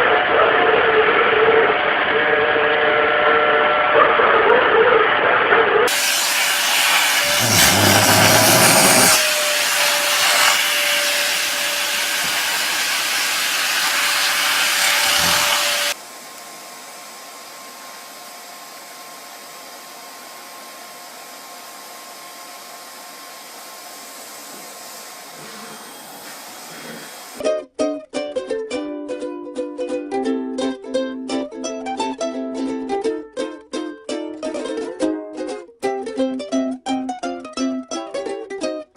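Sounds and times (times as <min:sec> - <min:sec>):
vacuum cleaner motor whine: 0:01.2 - 0:04.0, 0:05.9 - 0:27.4.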